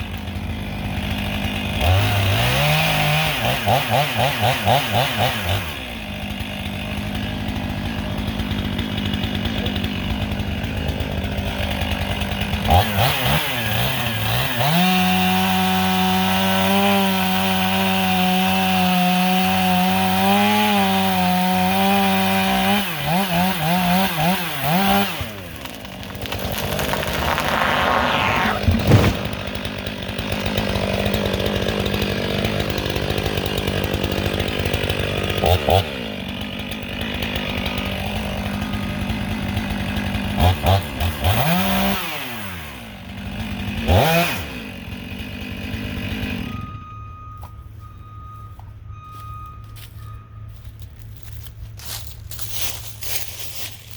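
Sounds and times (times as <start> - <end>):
chainsaw running and cutting: 0.0 - 46.8, 50.5 - 53.9
sharp loud knock: 28.4 - 29.7.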